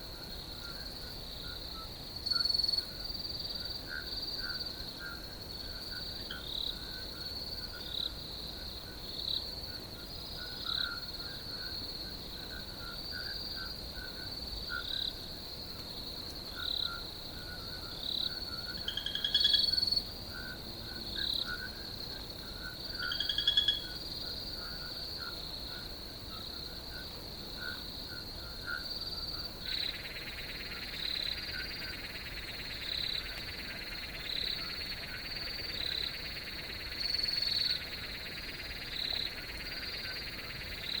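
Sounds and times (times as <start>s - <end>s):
crickets trilling: 0.0s - 41.0s
frogs calling: 16.5s - 41.0s.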